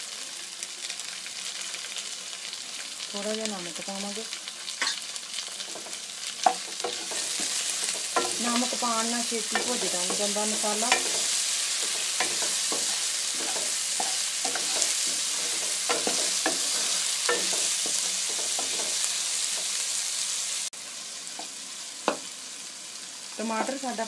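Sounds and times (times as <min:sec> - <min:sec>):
onions sizzling in hot oil: 0:00.0 - 0:24.0
wooden spatula scraping a pan: 0:09.4 - 0:19.7.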